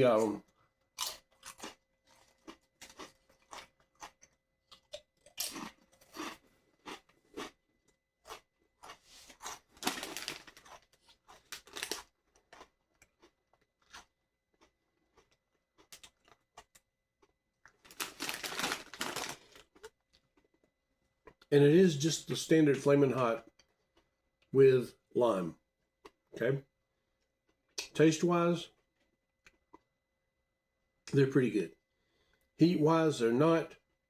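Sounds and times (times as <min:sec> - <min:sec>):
crunching potato chips: 0:01.0 - 0:20.7.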